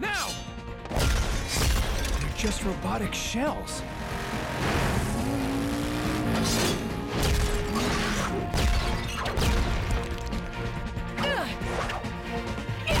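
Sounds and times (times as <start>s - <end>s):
dramatic score music: 0.0s - 13.0s
vehicle engine: 3.7s - 8.5s.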